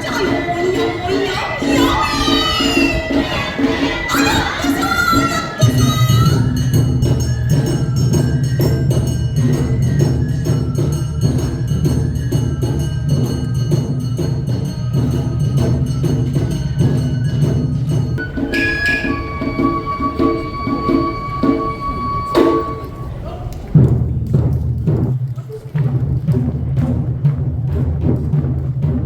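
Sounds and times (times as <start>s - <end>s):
drums: 0.0s - 29.0s
metal gong ringing: 18.2s - 23.2s.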